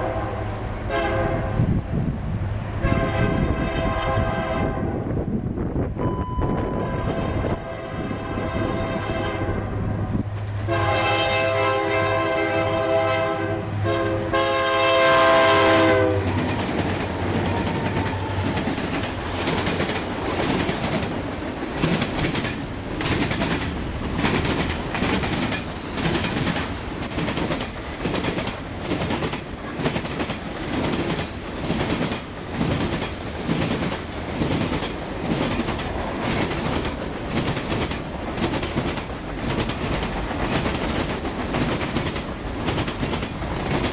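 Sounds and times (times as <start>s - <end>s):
locomotive air horn blasts: 0.0s - 1.7s, 2.8s - 5.1s, 6.0s - 16.4s
train wheels clacking on rails: 13.9s - 43.9s.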